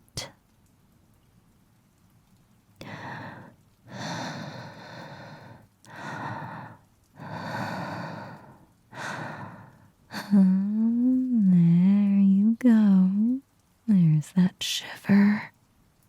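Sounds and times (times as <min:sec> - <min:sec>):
woman breathing deeply: 0:02.8 - 0:10.4.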